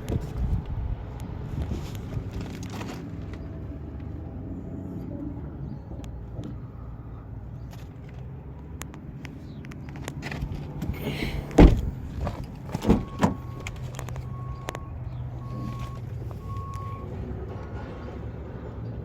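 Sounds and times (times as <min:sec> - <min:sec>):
car door clicks: 0:10.4 - 0:14.1
car door knocks: 0:11.4 - 0:13.4.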